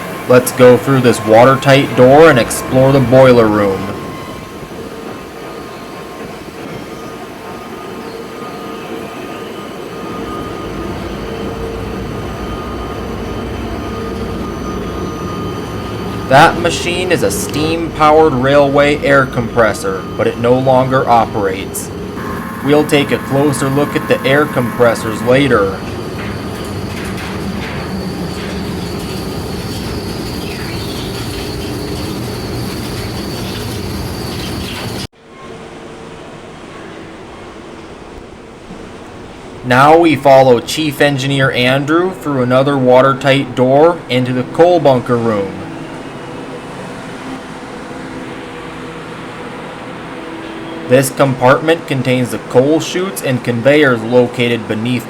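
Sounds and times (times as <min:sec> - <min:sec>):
steady whine: 0:00.0 - 0:35.9, 0:37.2 - 0:55.0
boiler room machinery rumble: 0:00.0 - 0:55.0.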